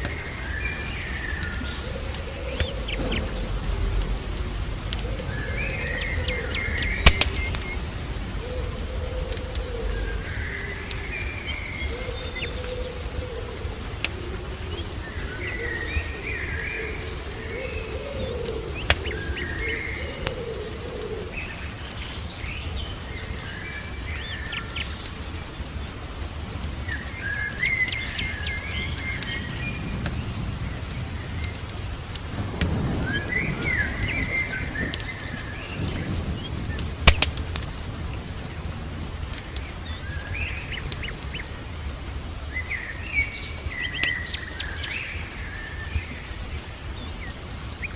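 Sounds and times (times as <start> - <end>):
steady low rumble: 0.0 - 18.0
low warbling bird call: 0.0 - 21.7
birds chirping and singing: 0.0 - 38.7
wood fire crackling and popping: 0.0 - 47.9.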